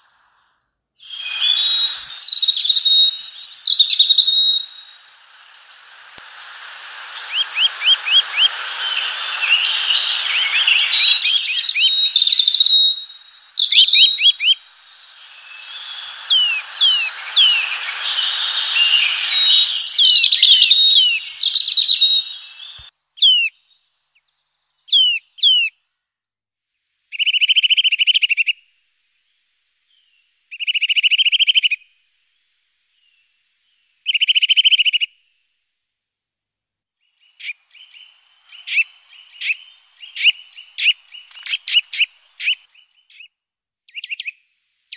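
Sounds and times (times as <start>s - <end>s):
steady hiss: 0.0s - 23.0s, 26.7s - 36.2s, 37.2s - 43.2s, 44.2s - 44.9s
songbirds singing: 0.0s - 25.7s, 37.0s - 43.3s
down-slurred whistles: 1.0s - 23.5s
short dry bird trills: 1.0s - 23.5s.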